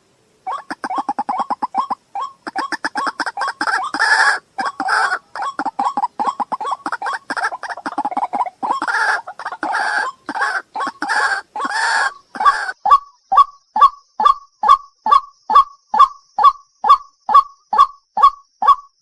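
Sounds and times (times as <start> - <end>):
waterhen calling: 0.0 - 14.4.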